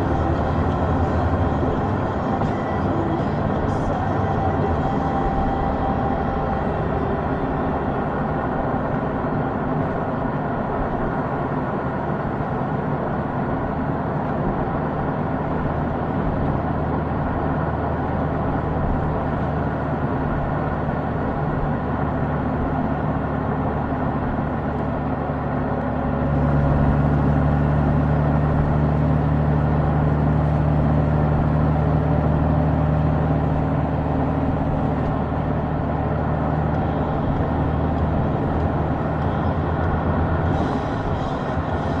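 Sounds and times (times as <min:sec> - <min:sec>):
motorcycle engine running: 0:00.0 - 0:10.2, 0:26.3 - 0:42.0
road and wind noise: 0:00.0 - 0:42.0.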